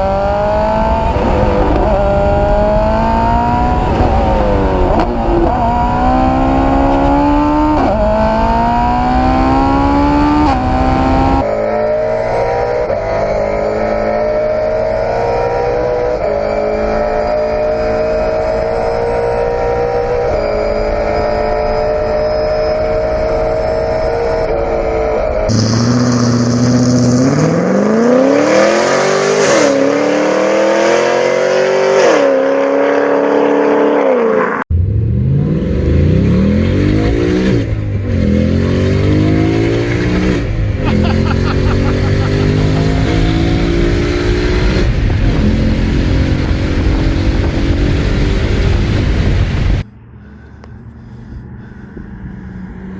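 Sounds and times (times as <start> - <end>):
car engines accelerating: 0.0 - 52.9.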